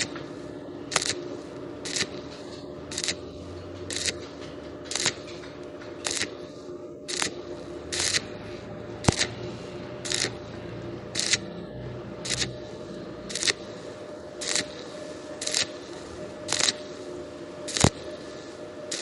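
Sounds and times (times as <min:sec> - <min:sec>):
welding arc crackling hiss: 0:00.0 - 0:11.6, 0:12.2 - 0:19.0
low steady hum: 0:00.0 - 0:19.0
sharp click: 0:04.9 - 0:06.3.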